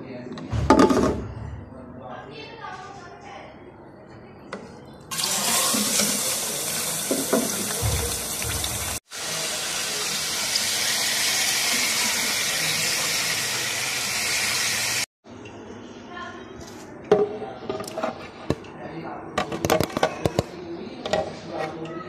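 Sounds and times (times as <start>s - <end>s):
hot oil sizzling in a pot: 5.1s - 15.1s.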